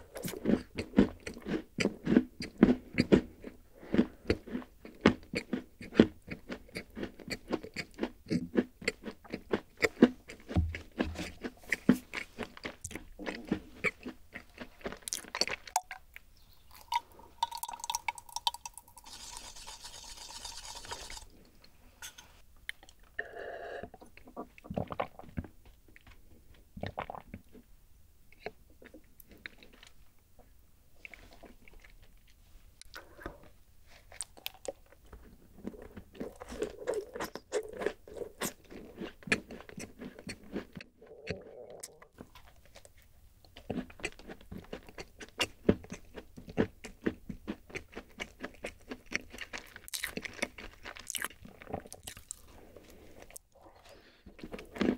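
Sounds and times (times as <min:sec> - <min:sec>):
crunchy cookie chewing: 0:00.0 - 0:21.7, 0:31.0 - 0:54.9
soft mouth and glass sounds: 0:15.4 - 0:21.3
drink pouring into glass: 0:16.7 - 0:21.3.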